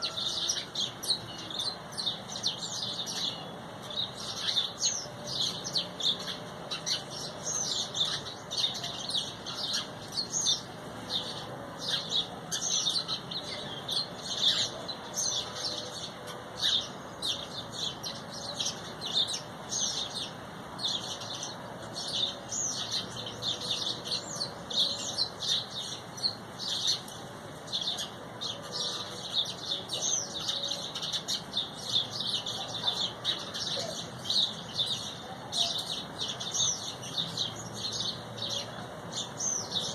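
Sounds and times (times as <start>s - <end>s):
flock of small birds chirping: 0.0s - 39.9s.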